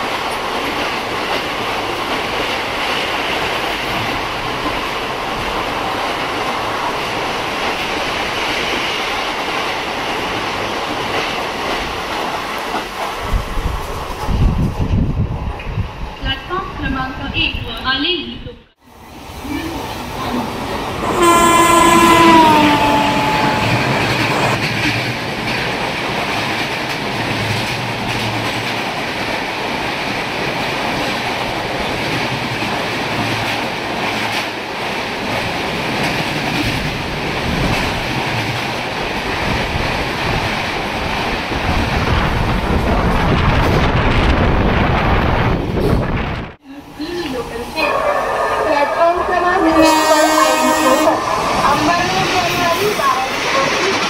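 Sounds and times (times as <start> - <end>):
train wheels rumbling on rails: 0.0 - 17.8, 19.0 - 54.0
train horn: 21.0 - 24.6, 47.8 - 52.6.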